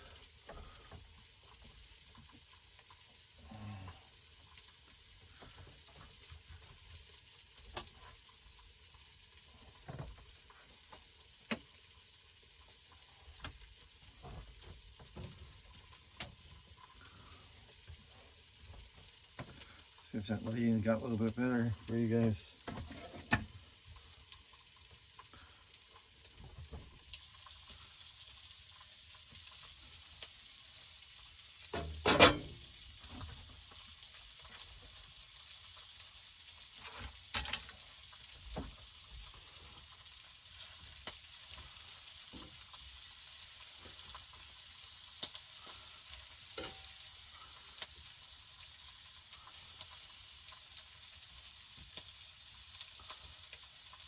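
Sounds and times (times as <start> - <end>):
sausages sizzling in a pan: 0.0 - 54.0
utensil clattering against pan: 31.8 - 32.6.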